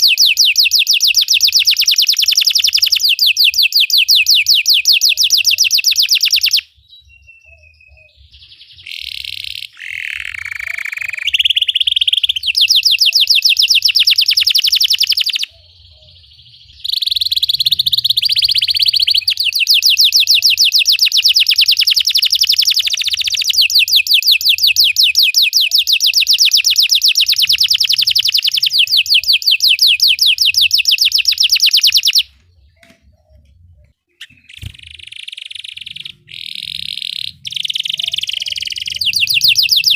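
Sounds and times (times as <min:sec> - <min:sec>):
canary trilling song: 0:00.0 - 0:39.9
canary warbling: 0:08.9 - 0:16.2, 0:34.3 - 0:39.9.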